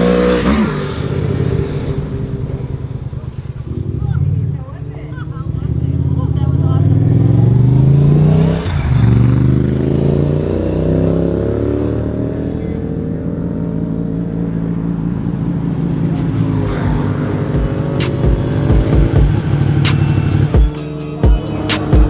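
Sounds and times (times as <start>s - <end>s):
vehicle engine accelerating: 0.0s - 22.0s
music with steady beat: 16.2s - 22.0s.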